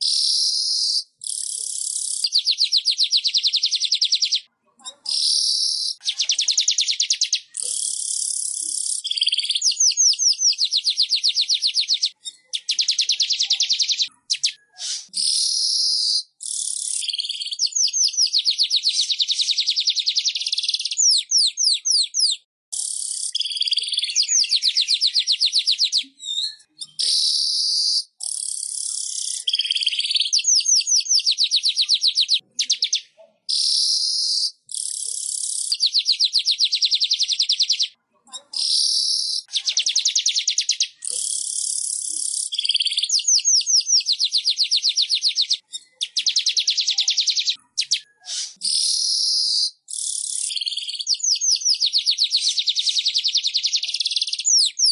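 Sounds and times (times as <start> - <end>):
bird song with ticking trills: 0.0 - 4.5, 5.1 - 38.0, 38.6 - 54.9
hissy buzzy bird phrases: 12.9 - 17.1.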